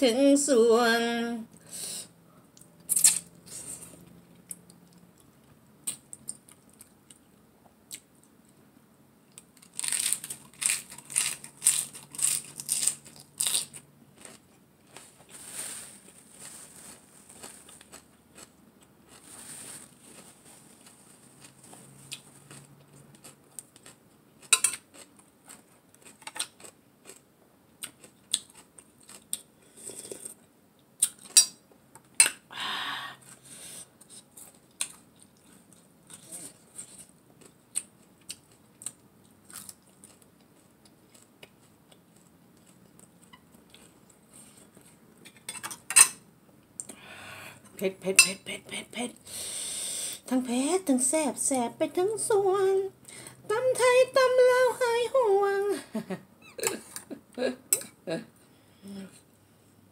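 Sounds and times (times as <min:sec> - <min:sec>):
chewing and crunching lettuce: 0:09.3 - 0:29.5, 0:34.0 - 0:45.1.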